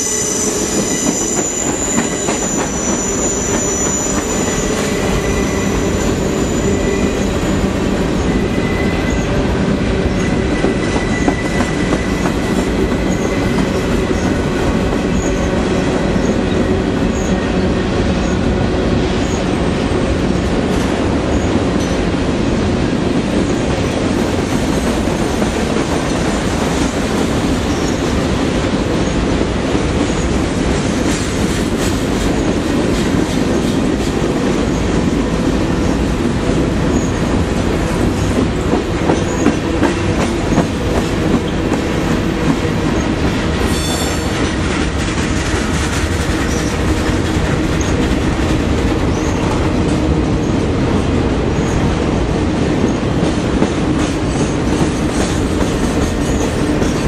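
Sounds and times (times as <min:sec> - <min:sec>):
wheel squeal: 0:00.0 - 0:07.6
steel wheels clattering on rail: 0:00.0 - 0:18.5, 0:19.1 - 0:57.0.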